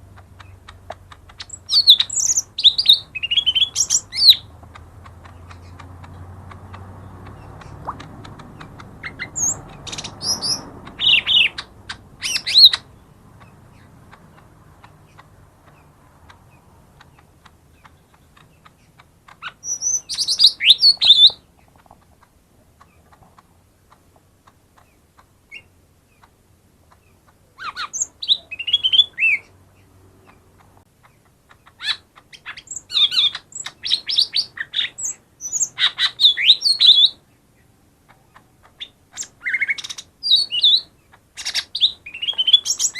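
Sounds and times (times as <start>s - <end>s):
bird singing whistled notes: 1.4s - 4.5s, 9.0s - 13.0s, 19.4s - 21.4s, 27.6s - 29.5s, 31.8s - 37.2s, 38.8s - 42.9s.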